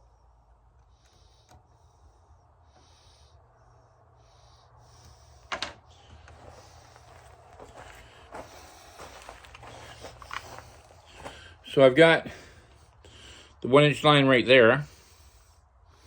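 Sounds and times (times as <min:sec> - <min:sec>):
person breathing through nose: 0:12.2 - 0:13.6, 0:14.8 - 0:16.0.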